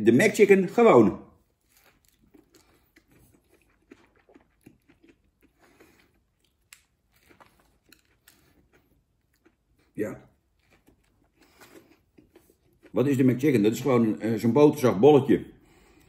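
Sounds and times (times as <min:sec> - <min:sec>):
biting and chewing sandwich: 0:01.4 - 0:13.2.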